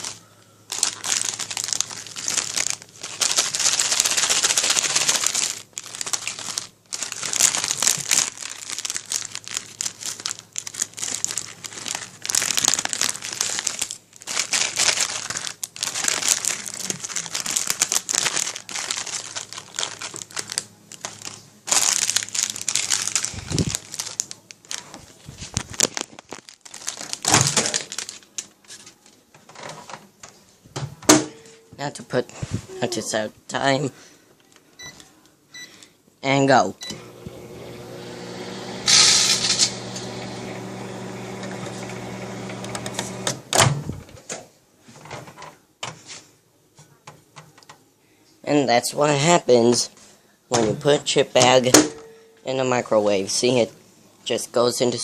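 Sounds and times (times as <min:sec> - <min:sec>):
chip bag crinkling: 0:00.0 - 0:29.0, 0:37.1 - 0:43.3.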